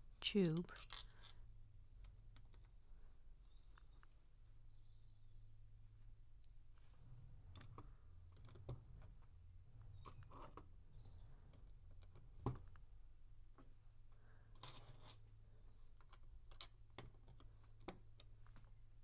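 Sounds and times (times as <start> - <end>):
plastic pieces clicking: 15.9 - 18.7.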